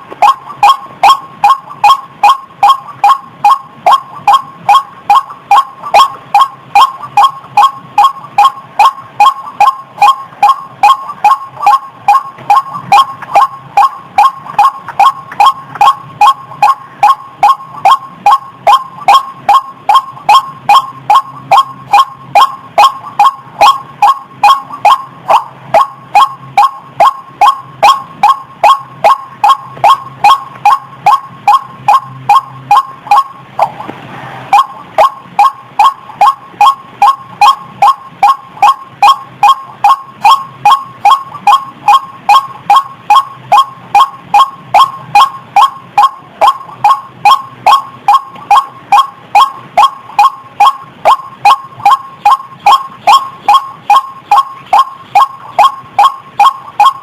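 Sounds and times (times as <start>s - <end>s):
waterhen calling: 34.5s - 57.0s.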